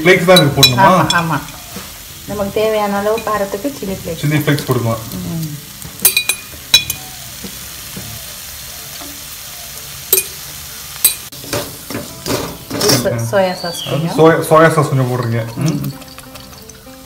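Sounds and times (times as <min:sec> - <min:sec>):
onions sizzling in a wok: 0:00.0 - 0:17.0
spoon clinking against pan: 0:00.3 - 0:01.6, 0:06.0 - 0:07.0, 0:10.1 - 0:10.4, 0:15.2 - 0:17.0.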